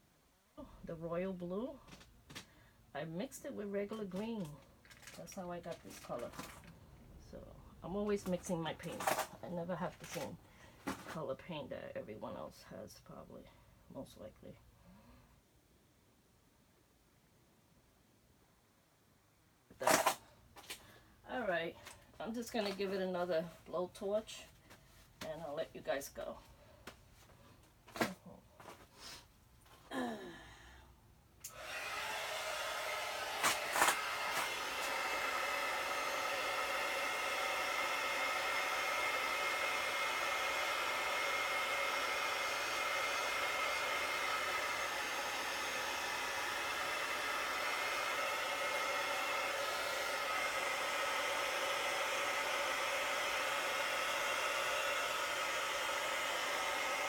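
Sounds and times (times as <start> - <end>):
hot-air tool fan whining: 31.4 - 57.0.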